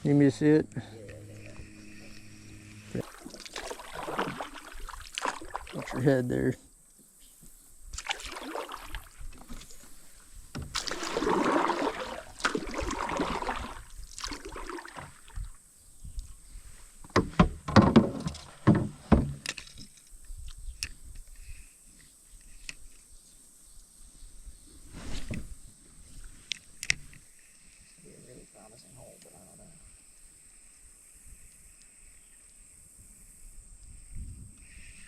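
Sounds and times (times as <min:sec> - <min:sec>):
rushing scraping noise: 0:00.0 - 0:05.4.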